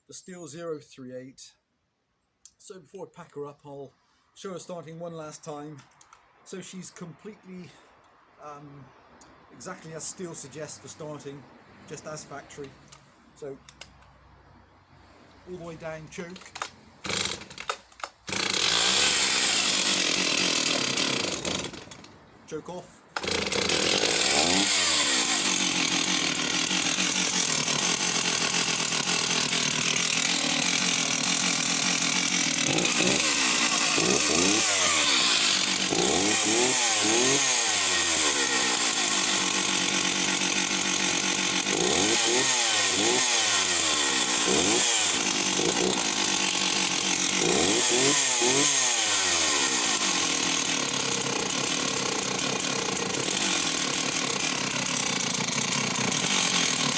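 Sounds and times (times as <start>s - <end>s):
chainsaw running and revving: 15.5s - 22.1s, 23.2s - 56.9s.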